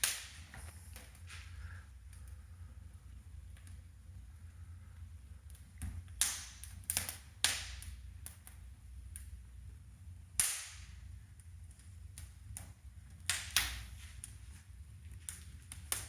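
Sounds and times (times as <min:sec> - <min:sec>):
fire pops and snaps: 0:00.0 - 0:02.4, 0:05.4 - 0:09.4, 0:10.3 - 0:16.0
wood fire crackling: 0:00.0 - 0:16.0.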